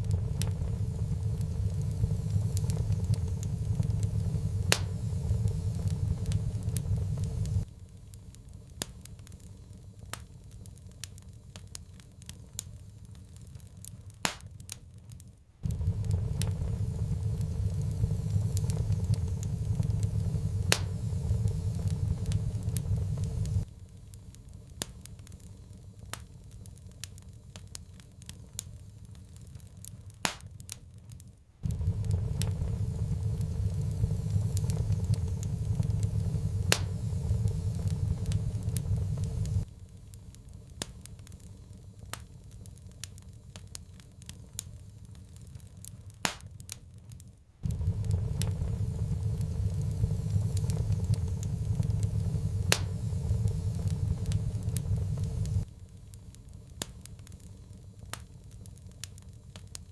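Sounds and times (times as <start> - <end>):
low rumble: 0.0 - 7.7, 15.6 - 23.7, 31.6 - 40.0, 47.6 - 56.0
wood fire crackling and popping: 0.0 - 59.9.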